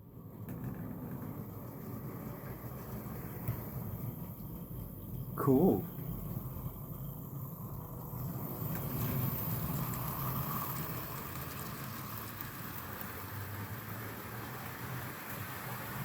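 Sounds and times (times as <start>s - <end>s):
wheels rumbling on rails: 0.1s - 16.0s
model train motor hum: 6.0s - 16.0s.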